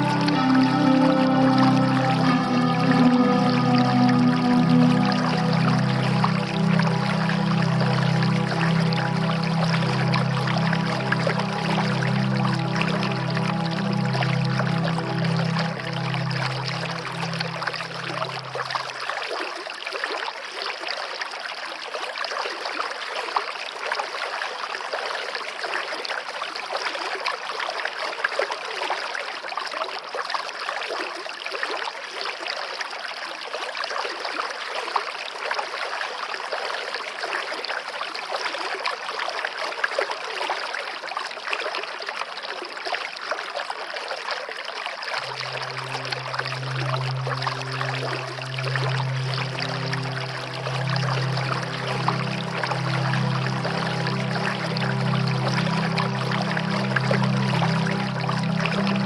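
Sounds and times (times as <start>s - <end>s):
soft music: 0.0s - 19.1s, 45.2s - 59.0s
stream water rushing: 0.0s - 19.6s, 45.1s - 59.0s.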